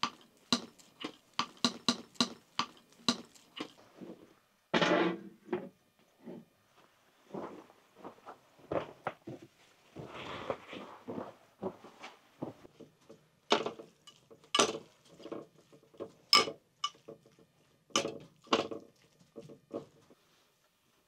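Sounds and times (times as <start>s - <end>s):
cookware and cutlery clinking: 13.5s - 19.1s.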